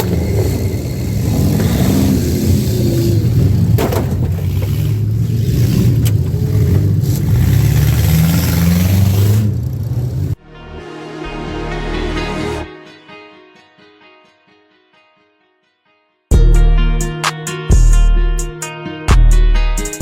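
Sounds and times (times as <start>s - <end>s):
car engines revving: 0.0s - 10.4s.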